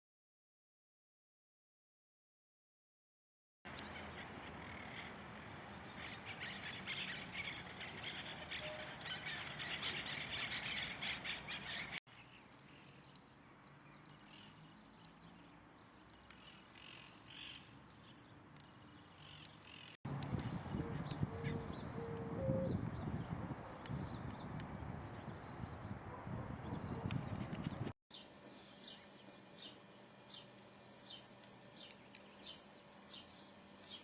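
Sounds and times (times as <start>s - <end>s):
birds squawking and chattering: 3.7s - 12.0s, 19.2s - 27.9s.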